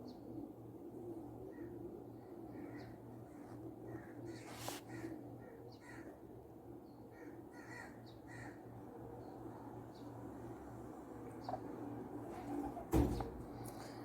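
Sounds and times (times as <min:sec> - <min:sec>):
faint bird calls: 0:01.4 - 0:06.2, 0:07.1 - 0:09.3, 0:11.2 - 0:14.0
brief rustle: 0:04.4 - 0:04.9.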